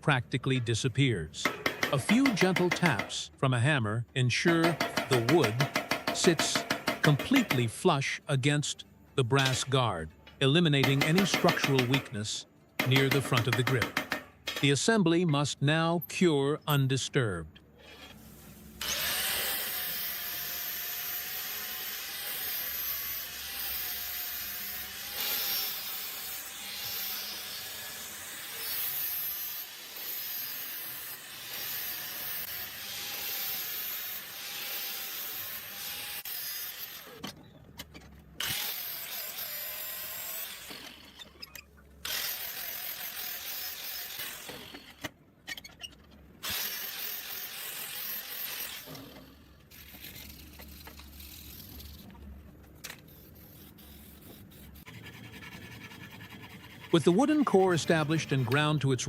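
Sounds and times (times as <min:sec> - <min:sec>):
power grinder shaping wood: 0:18.8 - 0:37.2, 0:42.1 - 0:44.7, 0:46.4 - 0:49.0, 0:53.5 - 0:58.8.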